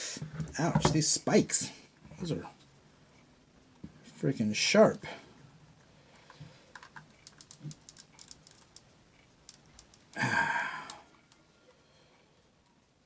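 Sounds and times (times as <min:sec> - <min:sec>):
plastic parts clicking: 0:06.7 - 0:10.2
breathy noise burst: 0:10.1 - 0:11.1.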